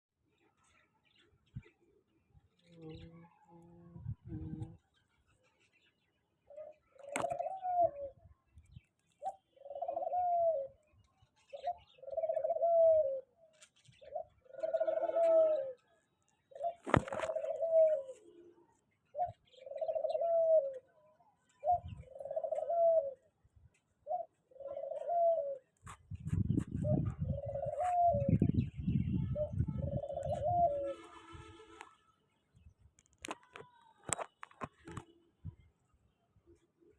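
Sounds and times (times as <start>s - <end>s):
dove cooing: 6.5s - 8.2s, 9.2s - 10.8s, 11.5s - 13.4s, 14.0s - 15.8s, 16.5s - 18.3s, 19.1s - 20.9s, 21.6s - 23.3s, 24.0s - 25.8s, 26.8s - 28.5s, 29.4s - 31.1s.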